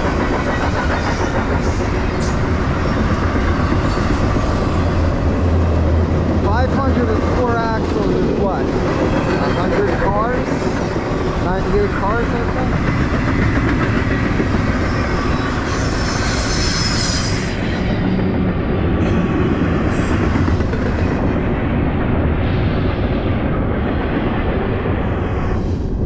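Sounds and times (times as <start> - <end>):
high squeal of train wheels: 0.0 - 5.0, 9.0 - 10.9, 13.3 - 18.3
train wheels rumbling on rails: 0.0 - 26.0.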